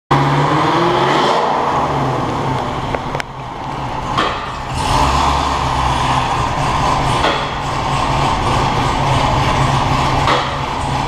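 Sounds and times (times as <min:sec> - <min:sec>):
car engine running choppy: 0:02.2 - 0:11.0.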